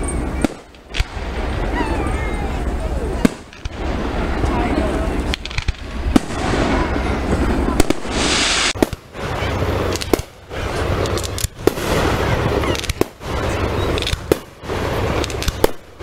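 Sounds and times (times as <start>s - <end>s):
steady noisy din: 0.0s - 16.0s
firework shells bursting: 5.2s - 9.2s, 9.8s - 16.0s.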